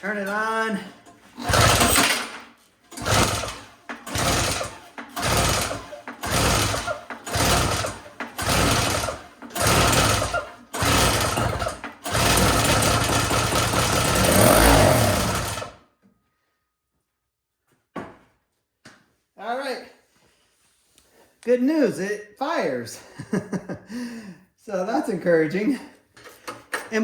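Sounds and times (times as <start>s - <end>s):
recoil starter pulls: 0.0s - 15.8s
snowblower engine running: 0.1s - 15.8s.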